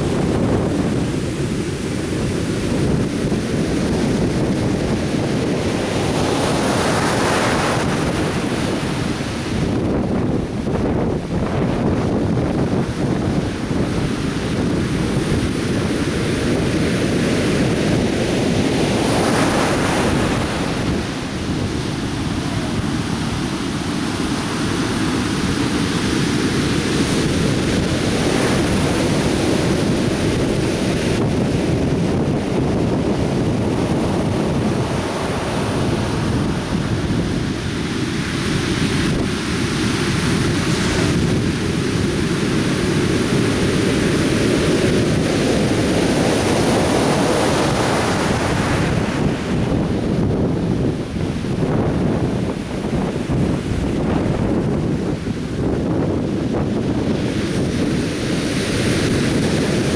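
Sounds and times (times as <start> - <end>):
surf waves breaking: 0.0 - 59.9
wind buffeting microphone: 0.0 - 59.9.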